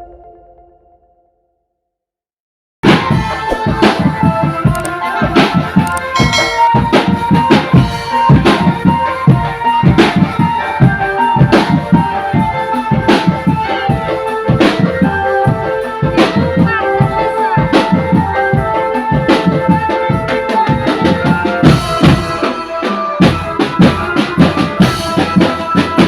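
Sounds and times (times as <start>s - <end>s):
drums beating: 2.9s - 26.0s
sustained melody line: 5.9s - 8.2s.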